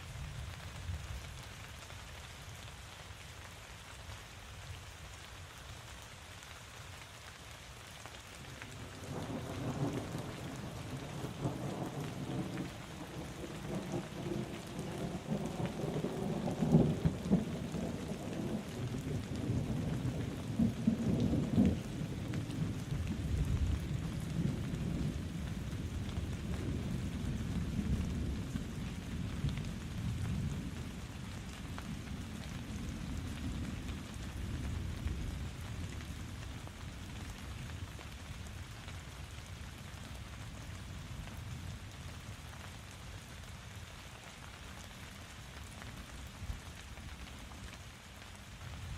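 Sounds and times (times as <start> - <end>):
rain falling: 0.0 - 48.9
thunder rumbling: 8.9 - 31.0.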